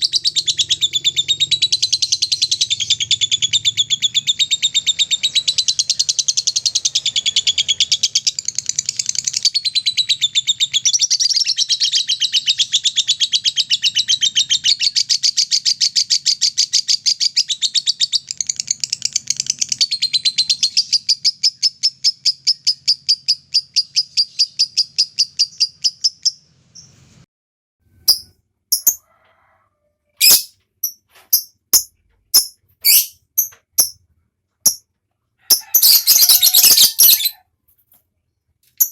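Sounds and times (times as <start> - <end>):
lovebird chattering trill: 28.1 - 29.0, 30.2 - 34.0, 35.5 - 37.4
sharp single bird chirps: 30.2 - 34.0.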